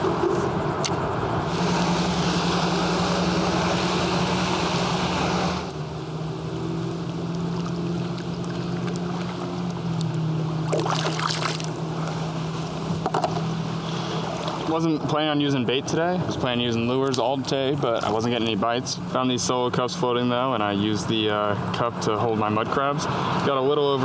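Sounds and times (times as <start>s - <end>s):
water and wind rushing: 0.0s - 19.9s
small boat motor running: 0.0s - 24.0s.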